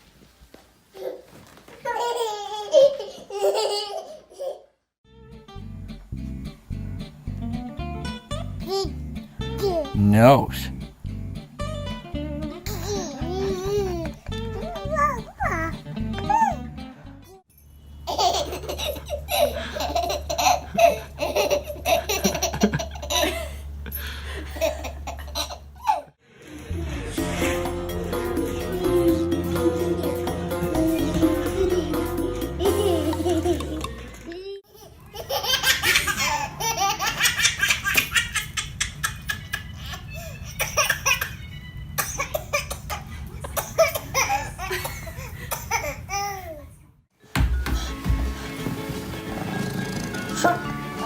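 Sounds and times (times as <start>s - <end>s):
baby laughing: 1.0s - 4.7s, 8.3s - 10.0s, 12.5s - 16.7s, 18.1s - 23.6s, 24.5s - 26.1s, 30.8s - 46.7s.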